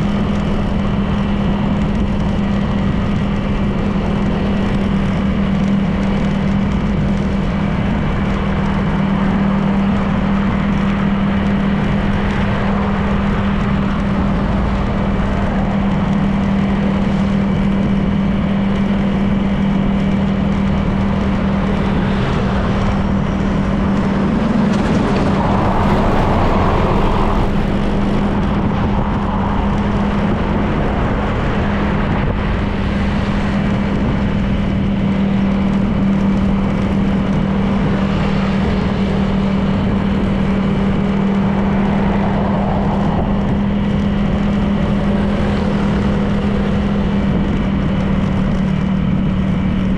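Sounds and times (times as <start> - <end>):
wind and road noise: 0.0 - 49.9
scooter engine cruising: 20.8 - 30.6.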